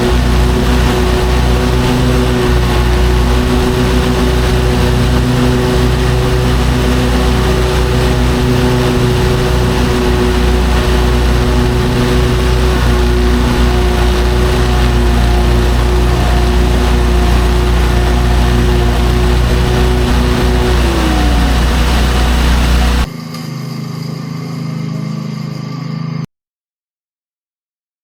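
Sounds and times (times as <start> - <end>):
lawn mower engine running: 0.0 - 23.1.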